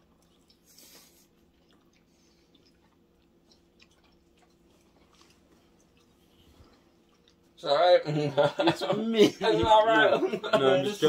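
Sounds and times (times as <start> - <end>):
chewing food: 0.0 - 7.6
low steady hum: 0.0 - 11.0.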